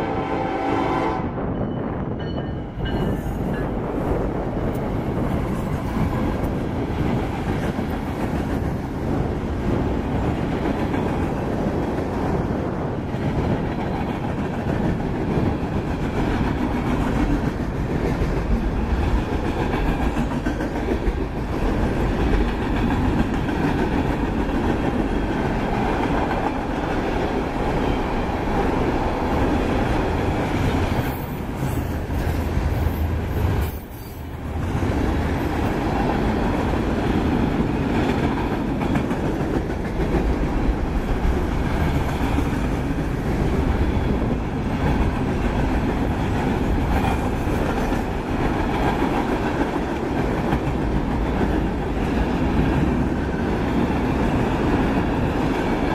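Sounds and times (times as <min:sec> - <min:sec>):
diesel locomotives passing: 0:00.0 - 0:55.9.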